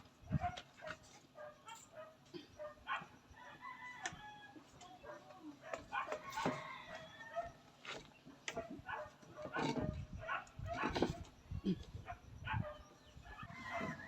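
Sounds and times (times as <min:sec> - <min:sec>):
rooster crowing: 0:03.4 - 0:04.6, 0:06.2 - 0:07.6, 0:13.4 - 0:14.0.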